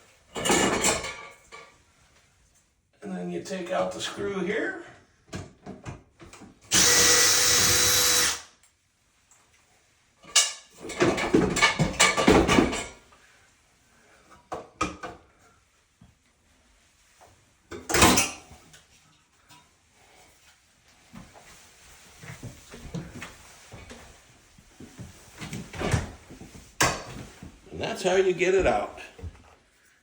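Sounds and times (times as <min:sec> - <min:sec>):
power drill running: 0:06.7 - 0:08.5.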